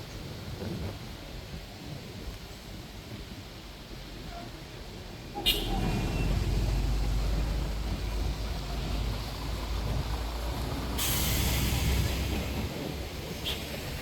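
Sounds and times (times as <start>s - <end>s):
bus engine rumble: 0.0s - 14.0s
loud air hiss: 10.6s - 14.0s.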